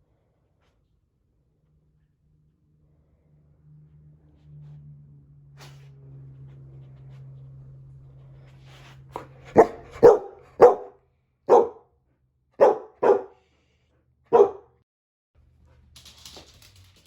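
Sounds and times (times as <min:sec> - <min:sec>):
dog barking: 0:09.2 - 0:11.8, 0:12.6 - 0:13.4, 0:14.3 - 0:14.8.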